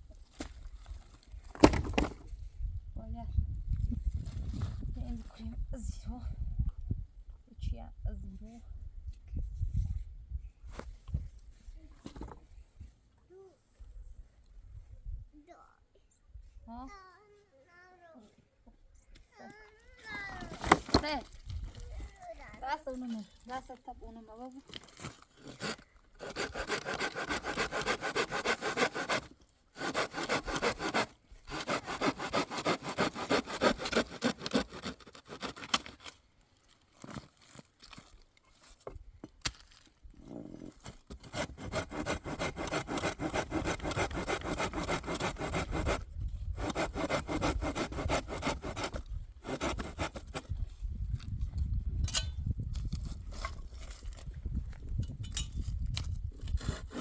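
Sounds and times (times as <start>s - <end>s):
hand saw cutting wood: 24.8s - 36.2s, 40.7s - 50.6s, 56.4s - 57.0s.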